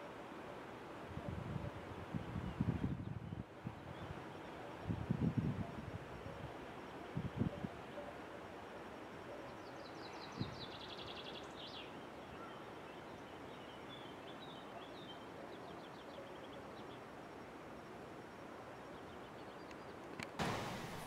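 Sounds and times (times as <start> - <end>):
steady hiss: 17.0 - 21.0.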